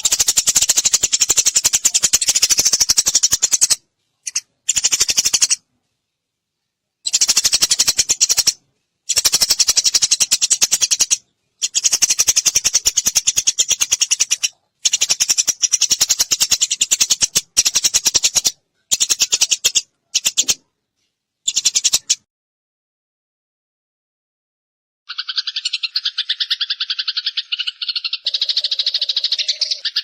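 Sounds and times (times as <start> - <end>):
sparrow chirping: 0.0 - 5.6, 7.0 - 20.6, 21.5 - 22.2, 25.1 - 30.0.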